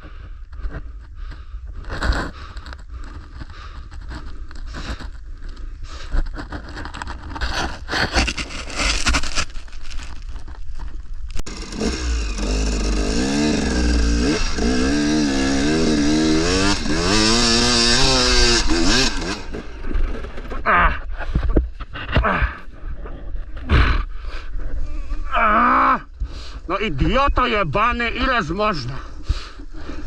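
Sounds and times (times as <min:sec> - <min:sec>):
scraping and rustling: 0:01.9 - 0:11.4
dirt bike engine revving: 0:11.4 - 0:20.6.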